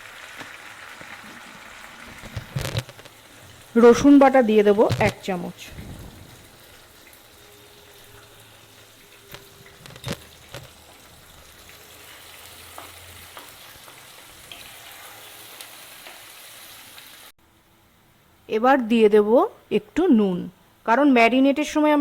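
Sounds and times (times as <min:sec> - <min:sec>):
food sizzling in oil: 0:00.0 - 0:17.4
stirring knocks: 0:01.0 - 0:07.3, 0:09.1 - 0:11.8.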